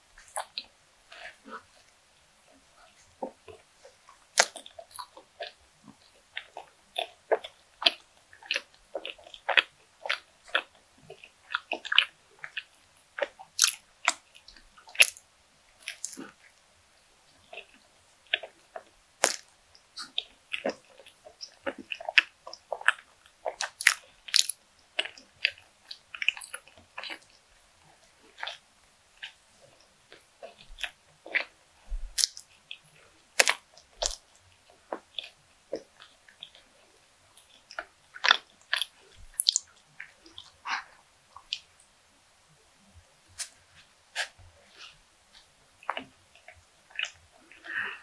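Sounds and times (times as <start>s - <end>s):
person biting and chewing: 4.3s - 15.2s, 15.8s - 16.5s, 17.5s - 27.4s, 28.4s - 28.6s, 30.1s - 34.2s, 37.4s - 41.7s, 43.4s - 48.0s.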